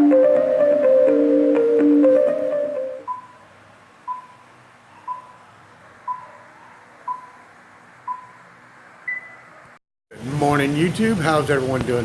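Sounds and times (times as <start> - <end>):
electronic countdown beeps: 3.0 - 3.4, 4.1 - 4.4, 5.1 - 5.4, 7.1 - 7.3, 8.1 - 8.4.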